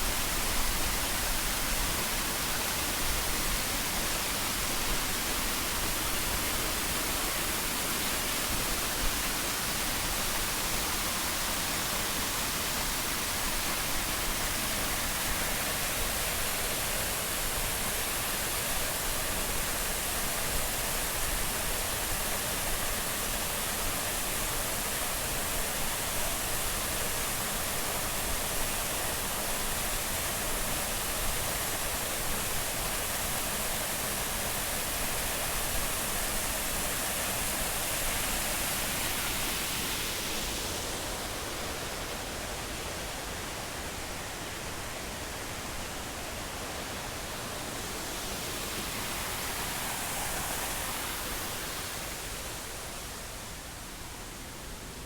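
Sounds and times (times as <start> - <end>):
waterfall roaring: 32.2 - 55.0.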